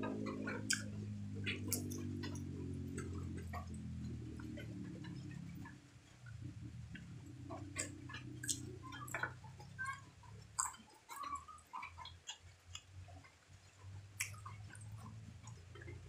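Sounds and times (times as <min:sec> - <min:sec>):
low hum: 0:00.0 - 0:16.0
person chewing: 0:00.6 - 0:03.7, 0:07.6 - 0:09.2, 0:10.6 - 0:12.8, 0:14.1 - 0:15.9.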